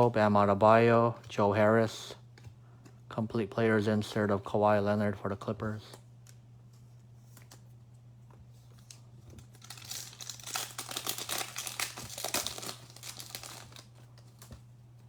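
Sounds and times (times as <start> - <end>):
plastic wrapper crinkling and tearing: 8.8 - 14.6.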